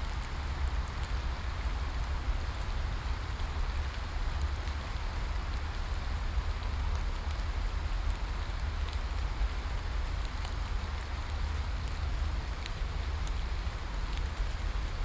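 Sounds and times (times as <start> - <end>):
steady rain falling: 0.0 - 15.0
raindrop ticks: 8.1 - 9.2, 10.1 - 14.7.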